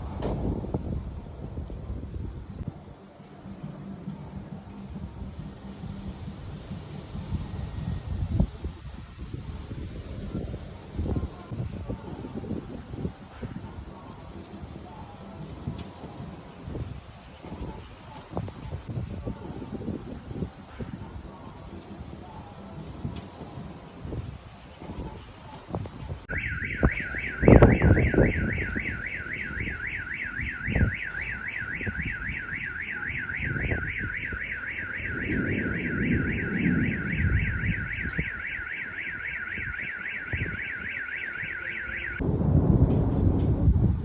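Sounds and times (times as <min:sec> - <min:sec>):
wind noise on microphone: 0:00.0 - 0:44.0
electronic alarm siren warbling: 0:26.3 - 0:42.2
loud low rumble: 0:34.9 - 0:38.1.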